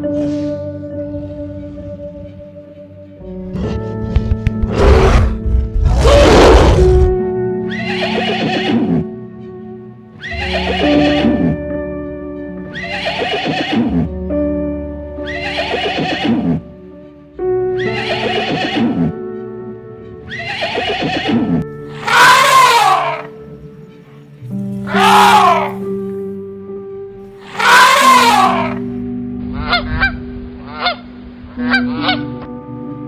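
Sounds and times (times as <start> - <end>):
background music with held notes: 0.0 - 33.0
horse whinnying: 4.7 - 9.1, 10.2 - 11.6, 12.7 - 14.1, 15.2 - 16.6, 17.8 - 19.2, 20.3 - 23.3, 24.9 - 25.8, 27.5 - 28.8.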